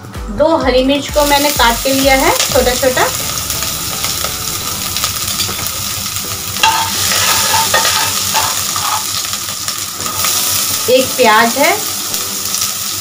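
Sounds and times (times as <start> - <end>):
chillies sizzling in hot oil: 1.1 - 13.0
spatula scraping a metal pan: 6.6 - 9.2.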